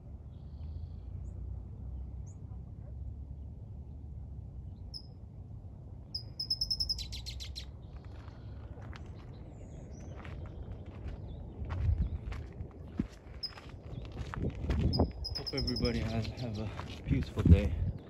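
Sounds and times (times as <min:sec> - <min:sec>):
steady low rumble: 0:00.0 - 0:18.0
wild birds chirping: 0:06.1 - 0:12.4, 0:14.9 - 0:17.1.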